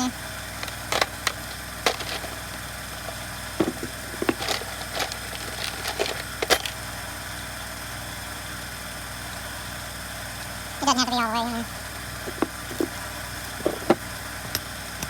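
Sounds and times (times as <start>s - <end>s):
hand tools clicking on metal: 0.6s - 6.8s.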